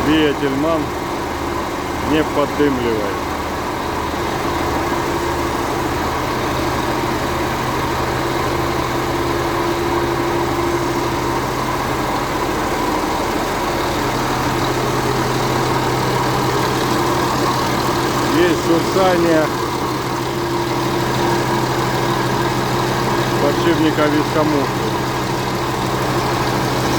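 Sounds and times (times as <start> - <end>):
person talking: 0.0 - 0.9, 2.0 - 3.2, 18.3 - 19.6, 23.4 - 25.0
tractor diesel engine idling: 0.0 - 26.9.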